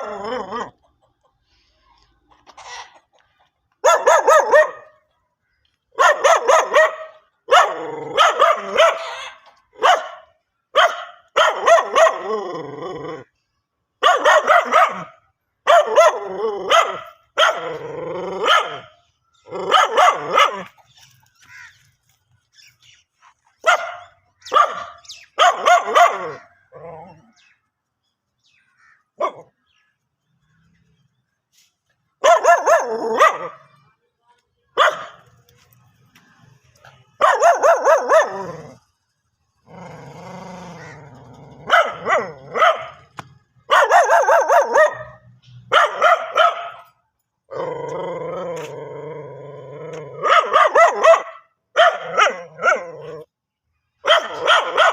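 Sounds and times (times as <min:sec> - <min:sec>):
dog barking: 0:03.8 - 0:05.0, 0:05.9 - 0:12.2, 0:14.0 - 0:17.8, 0:18.4 - 0:18.9, 0:19.7 - 0:20.7, 0:23.6 - 0:26.5, 0:29.2 - 0:29.5, 0:32.2 - 0:33.7, 0:34.8 - 0:35.2, 0:36.8 - 0:38.8, 0:41.6 - 0:43.1, 0:43.7 - 0:46.9, 0:50.1 - 0:53.3, 0:54.0 - 0:54.9.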